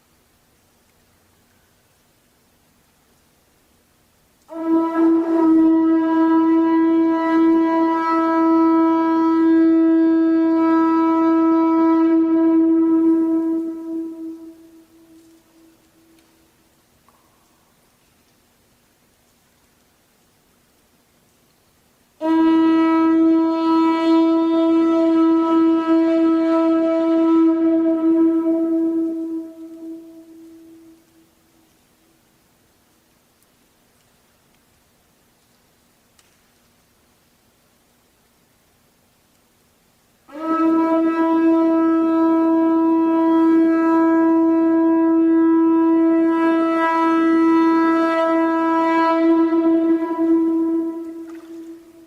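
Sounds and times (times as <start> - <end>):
conch shell trumpet blown: 4.5 - 16.6, 22.2 - 32.1, 40.3 - 52.0.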